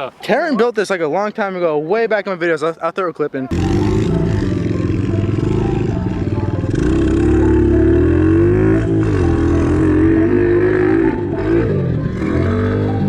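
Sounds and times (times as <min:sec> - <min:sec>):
small motorbike engine revving: 0:03.5 - 0:13.0.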